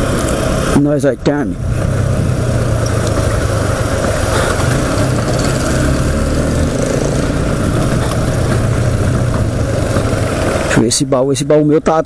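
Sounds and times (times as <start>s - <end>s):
road and wind noise: 0.0s - 12.0s
motorcycle engine running: 1.5s - 11.1s.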